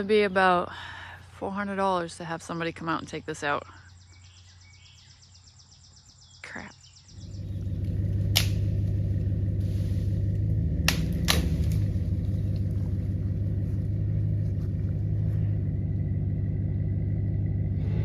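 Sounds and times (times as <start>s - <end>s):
engine idling: 7.1s - 18.0s.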